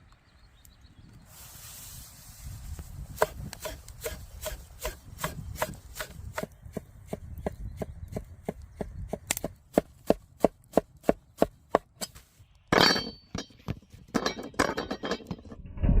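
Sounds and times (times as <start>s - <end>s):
knife chopping on wooden board: 3.2s - 12.1s.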